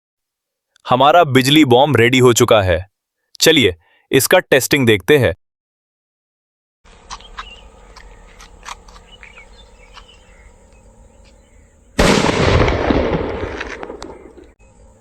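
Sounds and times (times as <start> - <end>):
firecracker loud bang: 12.0 - 14.6.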